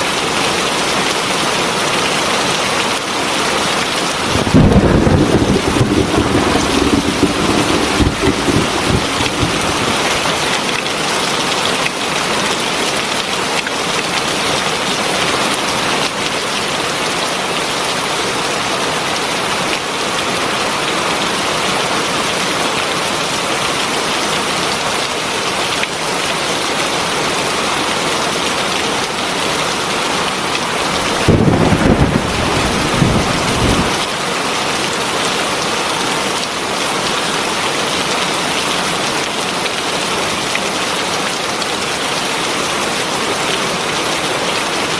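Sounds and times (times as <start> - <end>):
heavy rain falling: 3.3 - 44.9
thunder rumbling: 4.1 - 10.9, 30.7 - 34.1.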